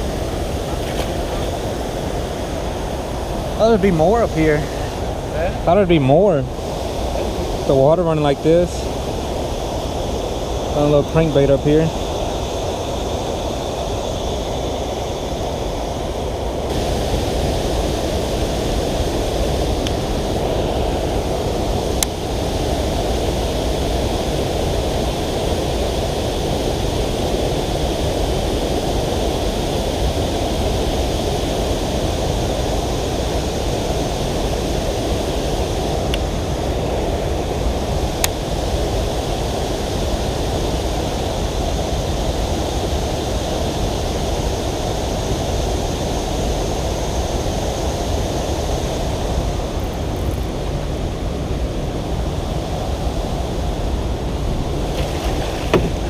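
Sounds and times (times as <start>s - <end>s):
water rushing over rocks: 16.6s - 25.9s, 54.7s - 56.0s.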